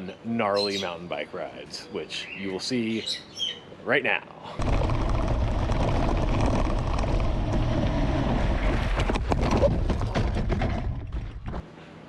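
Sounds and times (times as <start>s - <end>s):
bike clattering over rough ground: 4.6s - 11.7s.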